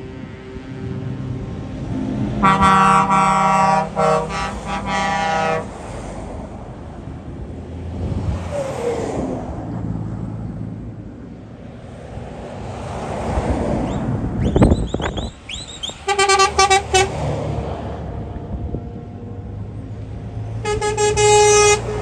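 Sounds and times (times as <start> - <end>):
truck engines running: 0.0 - 22.0
truck air horn blasts: 2.4 - 5.9, 15.8 - 17.3, 20.6 - 22.0.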